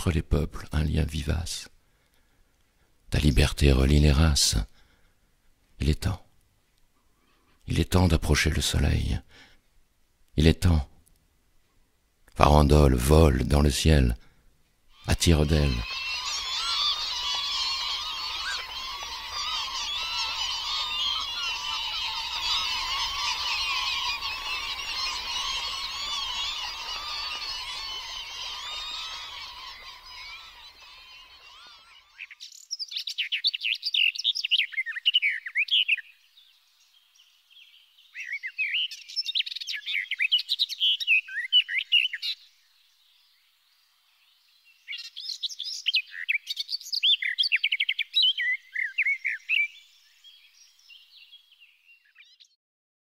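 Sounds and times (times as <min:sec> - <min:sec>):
flock of birds calling: 0:14.9 - 0:32.5
songbird high chirping song: 0:14.9 - 0:52.6.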